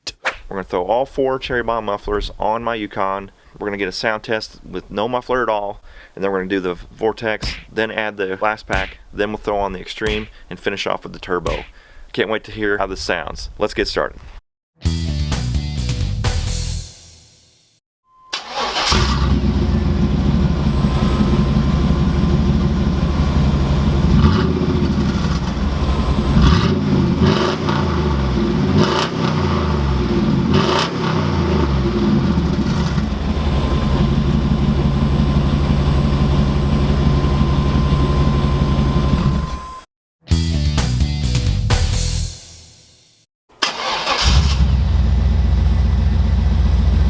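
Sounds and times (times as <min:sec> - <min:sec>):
car engine idling and revving: 0:18.4 - 0:39.7, 0:44.2 - 0:47.0.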